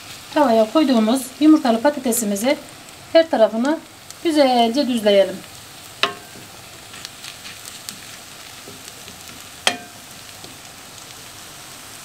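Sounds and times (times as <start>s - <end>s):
egg and potato sizzling in pan: 0.0s - 12.0s
spoon clinking against pan: 9.7s - 10.1s.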